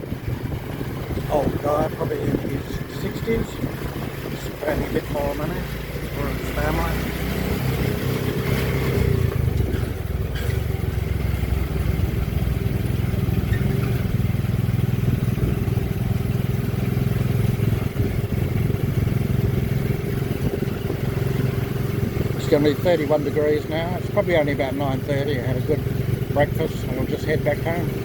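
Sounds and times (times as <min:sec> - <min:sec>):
wind noise: 0:00.0 - 0:06.2, 0:17.8 - 0:21.2
motorcycle engine running: 0:00.0 - 0:28.0
road noise: 0:00.0 - 0:28.0.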